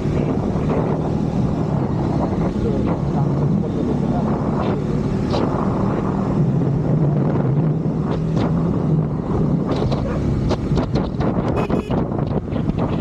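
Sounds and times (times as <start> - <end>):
motorcycle engine running: 0.0 - 13.0
wind rushing over microphone: 0.0 - 13.0
high-pitched tone: 11.6 - 12.0.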